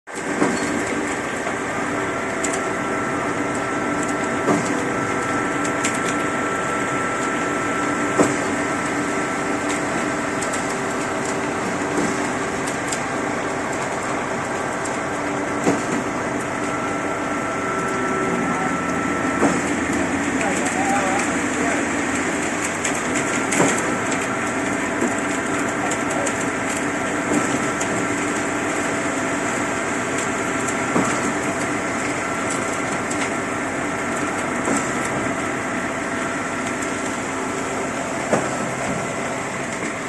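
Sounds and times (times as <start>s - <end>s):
machinery running with whine: 0.1s - 40.0s
machinery clunk: 0.2s - 1.6s, 4.4s - 5.0s, 9.6s - 14.7s, 15.3s - 17.0s, 17.6s - 21.5s, 38.0s - 40.0s.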